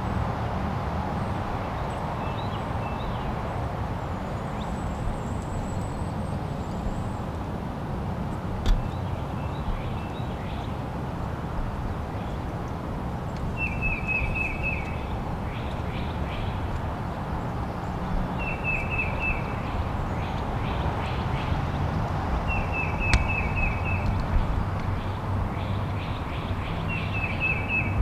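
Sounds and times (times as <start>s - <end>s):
bird calling: 13.5s - 16.7s, 18.3s - 21.7s, 22.4s - 28.0s.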